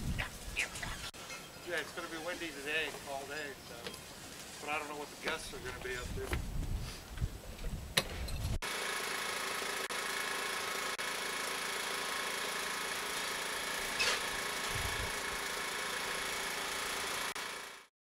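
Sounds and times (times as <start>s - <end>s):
machine running with even hum: 8.6s - 17.9s.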